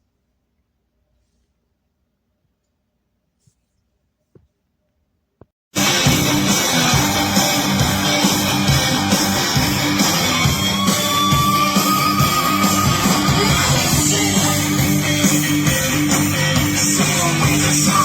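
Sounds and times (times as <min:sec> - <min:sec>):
loud guitar rock music: 0:05.7 - 0:18.0.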